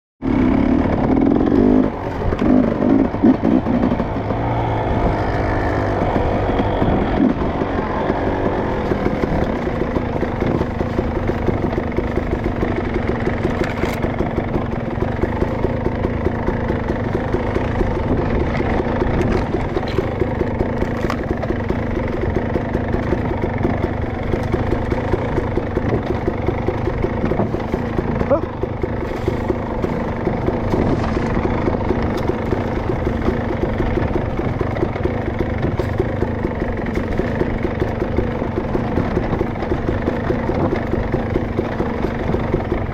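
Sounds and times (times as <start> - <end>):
dirt bike engine running: 0.2 - 42.9.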